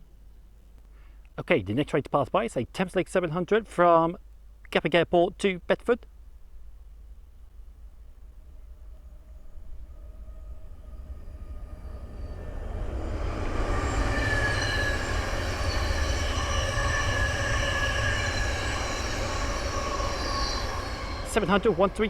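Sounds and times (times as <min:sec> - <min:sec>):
electric train passing: 0:06.4 - 0:22.0
high-pitched train whine: 0:06.5 - 0:22.0.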